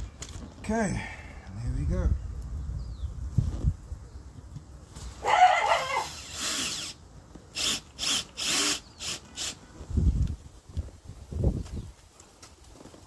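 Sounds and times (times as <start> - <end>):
power drill running: 6.0 - 9.6.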